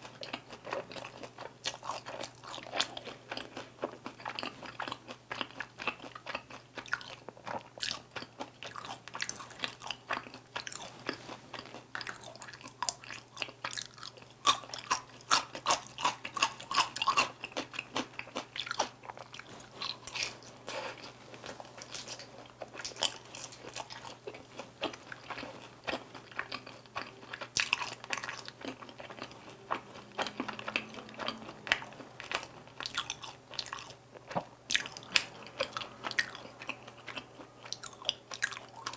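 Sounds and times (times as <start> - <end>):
crunchy chewing: 0.0 - 38.9.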